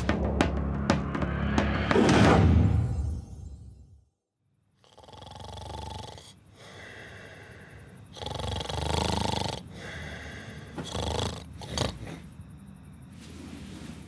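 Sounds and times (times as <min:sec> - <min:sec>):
person snoring: 0:04.8 - 0:12.3.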